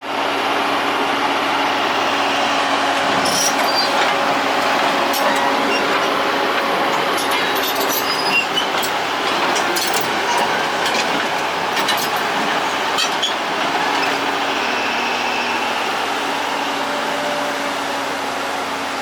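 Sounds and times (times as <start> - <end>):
diesel engine running under load: 0.0 - 19.0
metallic clinks and clanks: 5.1 - 5.9, 6.9 - 14.2.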